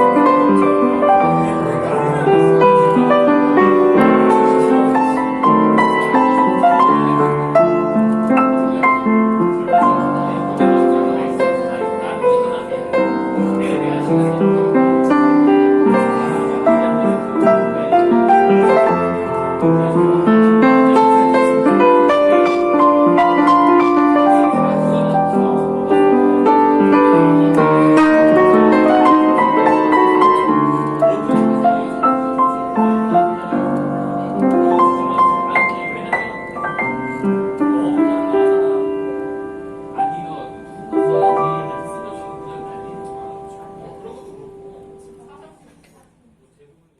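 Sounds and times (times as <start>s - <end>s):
piano playing: 0.0s - 45.6s.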